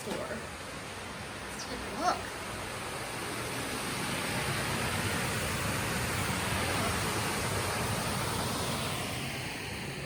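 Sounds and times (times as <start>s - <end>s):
water rushing over dam: 3.6s - 9.2s.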